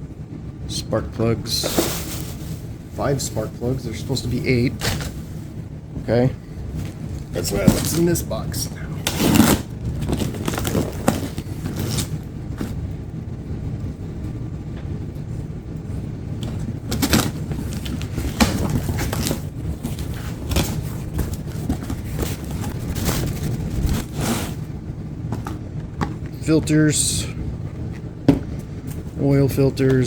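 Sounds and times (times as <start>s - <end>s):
steady low hum: 0.0s - 30.0s
cardboard boxes rustling: 1.6s - 3.2s, 6.7s - 8.4s, 9.0s - 12.8s, 16.5s - 24.7s.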